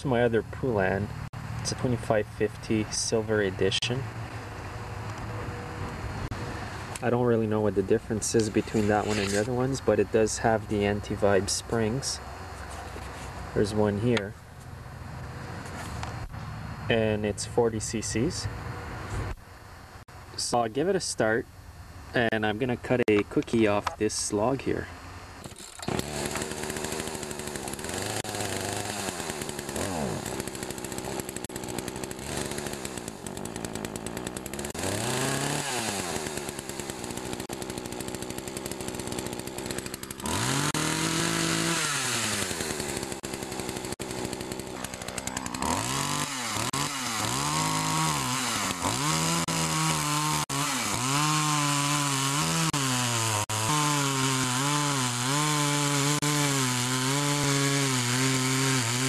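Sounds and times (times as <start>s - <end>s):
chainsaw revving: 3.9s - 14.3s, 25.1s - 59.0s.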